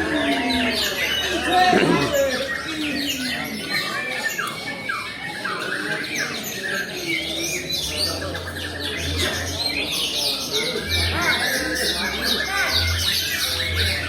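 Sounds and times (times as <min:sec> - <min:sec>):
bird singing: 0:00.0 - 0:14.0.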